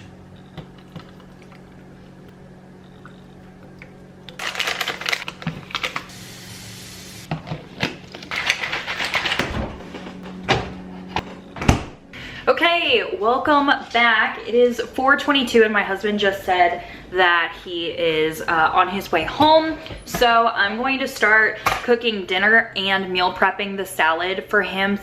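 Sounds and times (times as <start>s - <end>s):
containers and lids clattering: 0.0s - 6.1s, 7.3s - 11.4s
water pouring: 0.0s - 9.2s
steady low hum: 0.0s - 18.9s.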